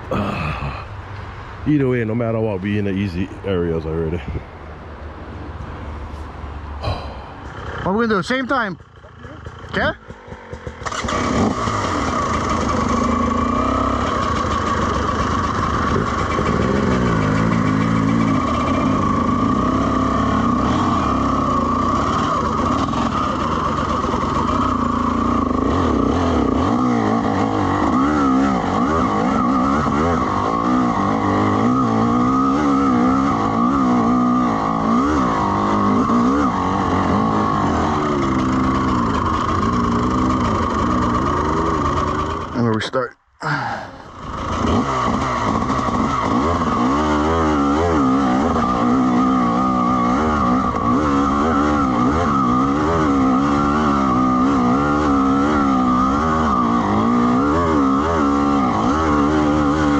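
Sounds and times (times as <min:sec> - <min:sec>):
two-stroke dirt bike engine revving: 0:06.8 - 0:42.8, 0:43.4 - 0:59.9.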